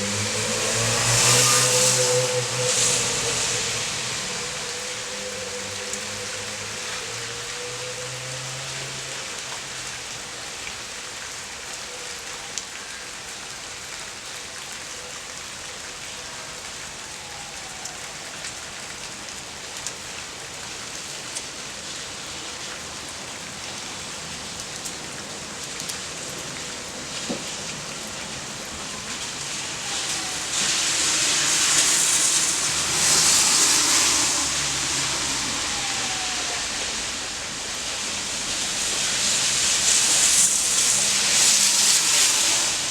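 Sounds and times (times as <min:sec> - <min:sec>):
loud rushing noise: 0:00.0 - 0:05.2, 0:29.8 - 0:42.9
steady rain falling: 0:00.0 - 0:42.9.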